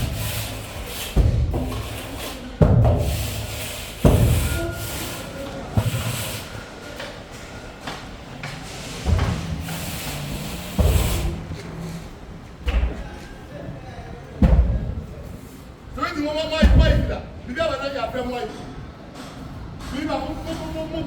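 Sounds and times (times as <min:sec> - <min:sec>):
heavy thuds of concrete work: 0:00.0 - 0:13.6, 0:14.4 - 0:15.5, 0:16.5 - 0:17.6.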